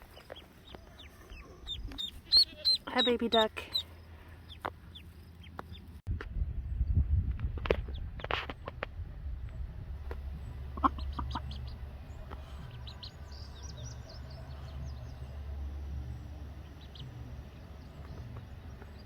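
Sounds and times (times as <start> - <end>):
steady low rumble: 0.0 - 19.0
duck clucking: 1.0 - 3.8, 10.7 - 13.1.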